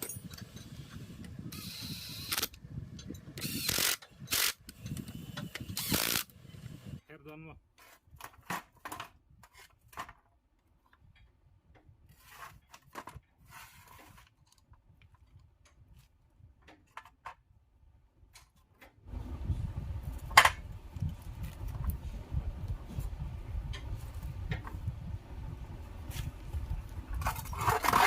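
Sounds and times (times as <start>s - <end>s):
low rumbling noise: 19.1s - 28.0s.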